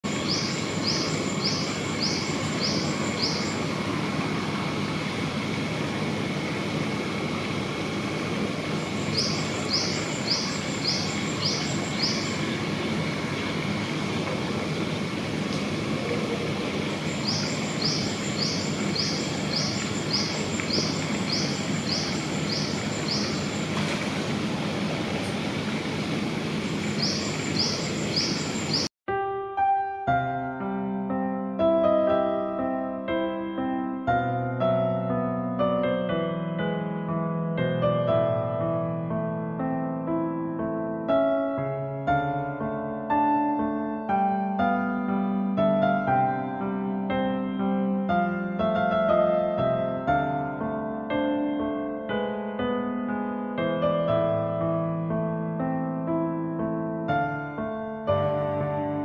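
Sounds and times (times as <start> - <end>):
bird chirping: 0.0 - 3.7, 8.8 - 12.6, 17.0 - 23.8, 26.6 - 28.9
steady background hum: 0.1 - 28.9.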